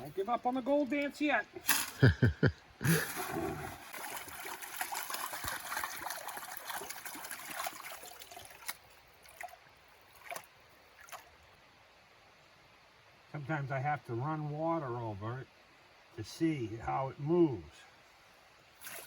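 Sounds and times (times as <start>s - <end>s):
water swishing in a gold pan: 2.9s - 11.5s, 18.7s - 19.0s.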